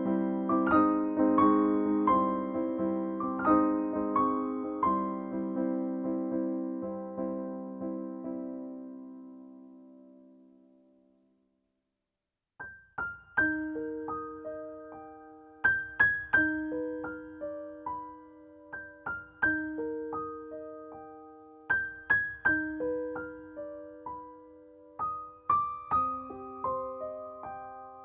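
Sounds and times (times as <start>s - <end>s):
gentle piano melody: 0.0s - 11.2s, 12.6s - 28.0s.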